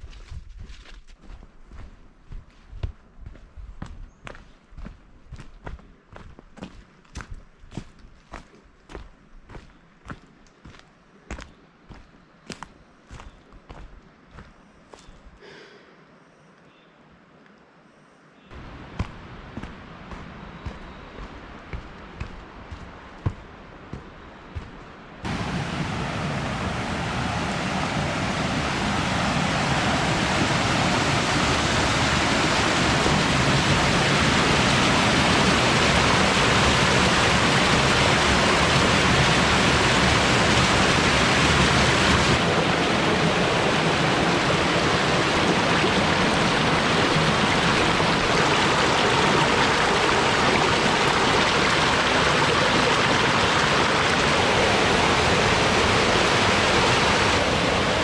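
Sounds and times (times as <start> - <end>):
stream rushing over rocks: 25.2 - 58.0.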